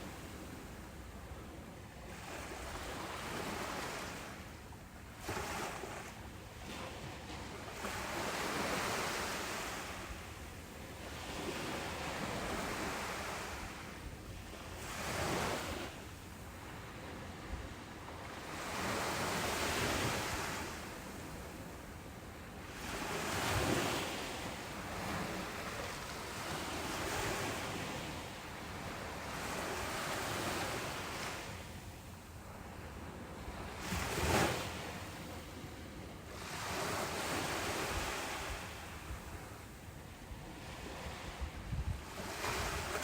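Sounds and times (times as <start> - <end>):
ocean waves breaking: 36.3 - 39.4.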